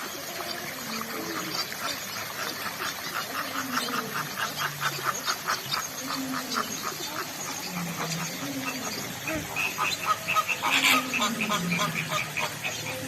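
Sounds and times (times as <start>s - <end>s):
bird drawn-out sliding calls: 6.4s - 13.0s.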